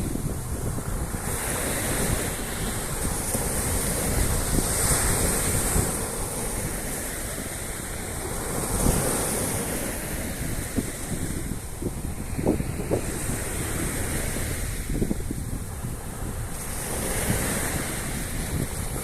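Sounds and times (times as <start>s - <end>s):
sea surf washing onto shore: 0.0s - 19.0s
wind buffeting microphone: 0.0s - 19.0s.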